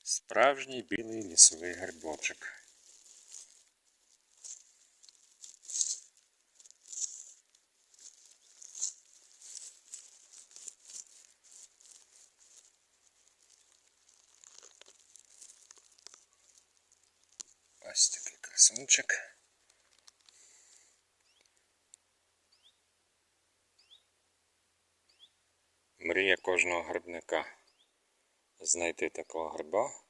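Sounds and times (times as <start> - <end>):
dry leaf litter rustling and crackling: 1.0 - 20.8.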